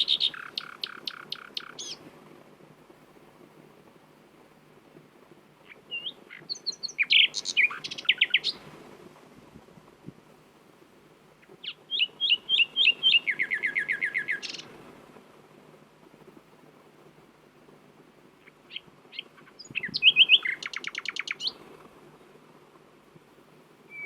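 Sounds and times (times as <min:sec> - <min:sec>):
nightingale singing: 0:00.0 - 0:02.0, 0:05.6 - 0:08.6, 0:11.4 - 0:14.8, 0:18.4 - 0:22.3.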